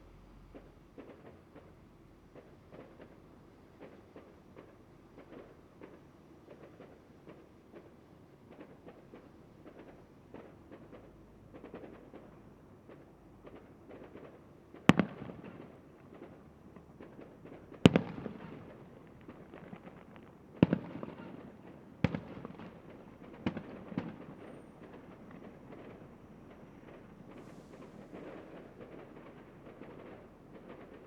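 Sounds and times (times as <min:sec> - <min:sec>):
small firework crackles: 0:00.0 - 0:31.0
firework shells bursting: 0:17.2 - 0:31.0.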